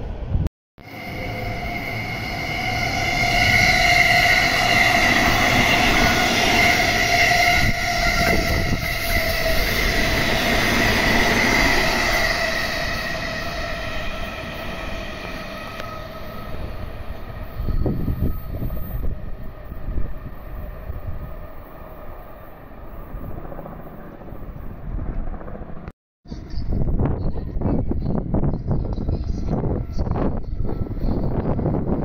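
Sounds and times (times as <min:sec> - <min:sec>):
steady train whine: 0:00.0 - 0:32.0
train wheels rumbling on rails: 0:00.1 - 0:21.3.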